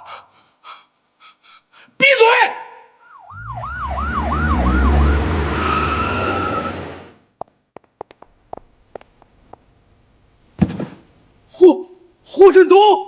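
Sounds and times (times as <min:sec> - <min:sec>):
siren wailing: 0:03.1 - 0:07.1
vehicle rumble: 0:03.3 - 0:07.3.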